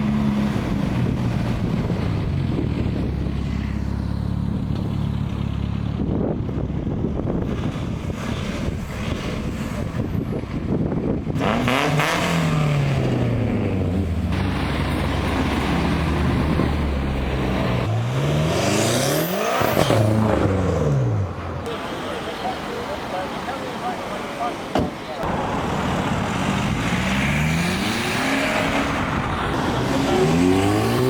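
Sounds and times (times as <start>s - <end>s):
cars accelerating past: 11.3s - 24.5s, 25.2s - 31.0s.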